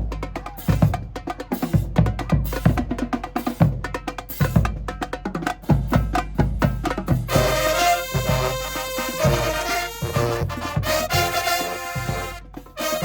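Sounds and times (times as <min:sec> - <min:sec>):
marching band drumline: 0:00.0 - 0:13.0
brass section held chords: 0:07.3 - 0:13.0.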